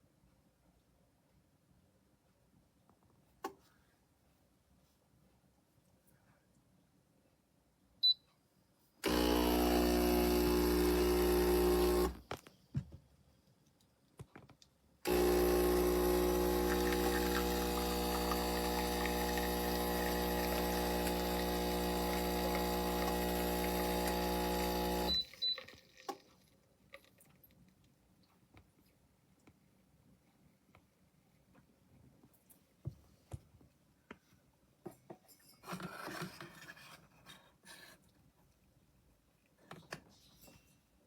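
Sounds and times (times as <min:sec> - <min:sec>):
espresso machine pump buzzing: 0:09.0 - 0:12.2, 0:15.1 - 0:25.2.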